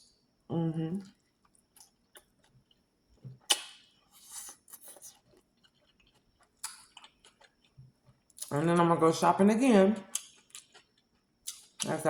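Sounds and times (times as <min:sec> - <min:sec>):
chewing with wet clicks: 0:01.4 - 0:02.8, 0:03.4 - 0:08.6, 0:10.0 - 0:12.0
crunchy bite: 0:03.4 - 0:05.2.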